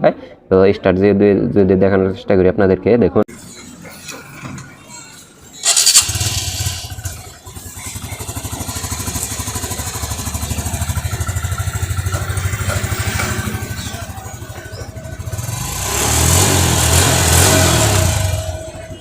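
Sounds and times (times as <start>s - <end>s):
electric starter: 5.6s - 13.9s, 15.2s - 19.0s
motorcycle engine idling: 5.6s - 19.0s.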